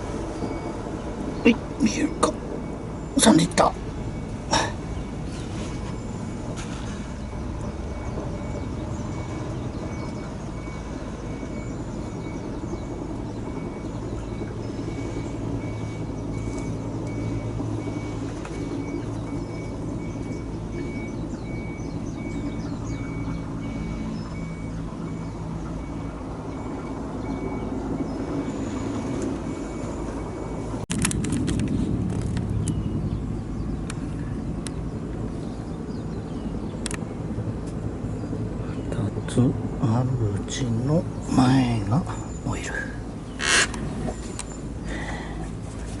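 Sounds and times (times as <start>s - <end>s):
engine idling: 0.0s - 46.0s
bird chirps: 0.3s - 30.6s, 32.5s - 37.1s.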